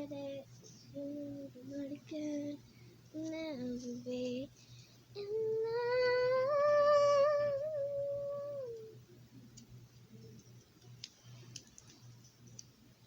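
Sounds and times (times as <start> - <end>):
low steady hum: 0.0 - 13.0
child singing long note: 5.2 - 9.0
faint clicks: 9.5 - 12.8.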